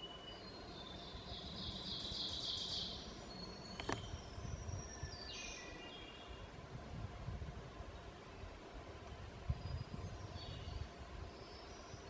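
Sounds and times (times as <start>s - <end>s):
songbirds singing: 0.0s - 6.6s, 7.6s - 12.0s.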